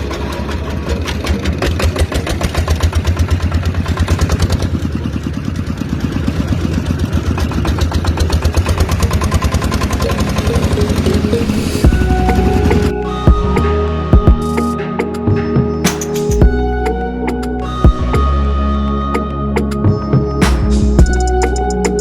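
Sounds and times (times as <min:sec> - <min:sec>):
tractor engine chugging: 0:00.0 - 0:14.7.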